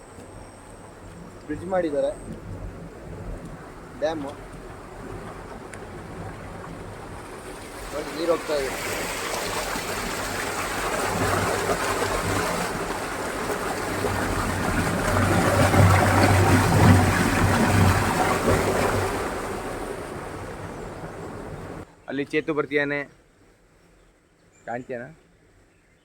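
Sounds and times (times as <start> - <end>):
water rushing over a dam: 3.6 - 21.8.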